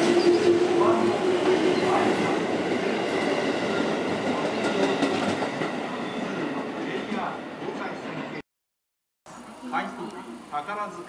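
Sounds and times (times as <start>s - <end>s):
train wheels rumbling on rail: 0.0s - 8.2s.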